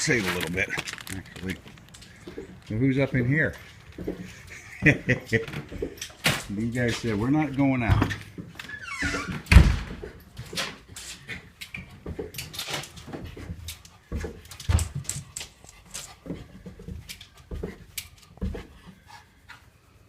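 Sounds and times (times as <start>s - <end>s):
dog claws clicking and thumps: 9.5s - 18.9s.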